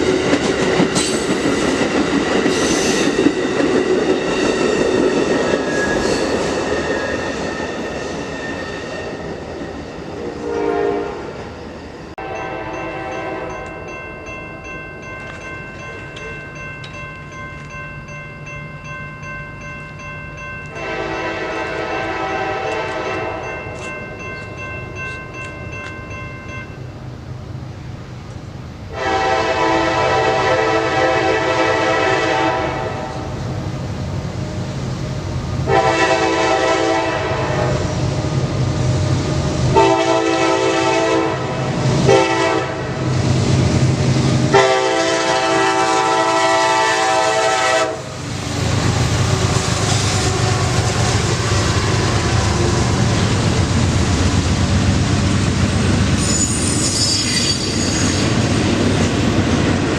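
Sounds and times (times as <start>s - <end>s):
locomotive air horn blasts: 10.2s - 11.3s, 12.2s - 13.5s, 20.7s - 23.5s, 28.9s - 33.3s, 35.7s - 37.8s, 39.8s - 43.0s, 44.5s - 48.1s
locomotive engine rumble: 47.5s - 56.2s.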